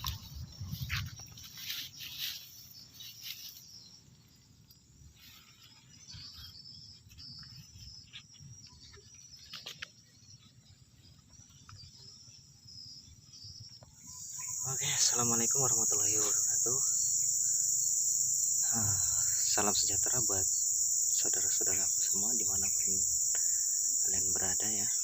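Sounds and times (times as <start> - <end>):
rustling and brushing: 0.0 - 3.8
insects chirring: 0.0 - 25.0.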